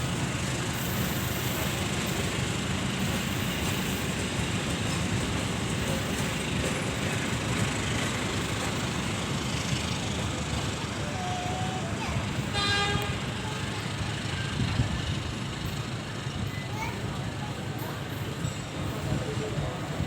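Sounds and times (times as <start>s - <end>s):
diesel train rumbling: 0.0s - 20.0s.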